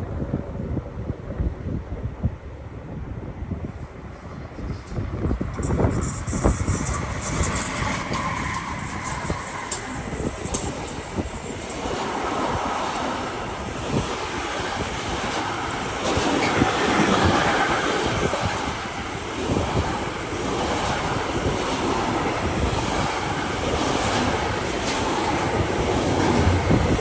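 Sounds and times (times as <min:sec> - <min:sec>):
wind buffeting microphone: 0:00.0 - 0:27.0
train running past: 0:03.7 - 0:27.0.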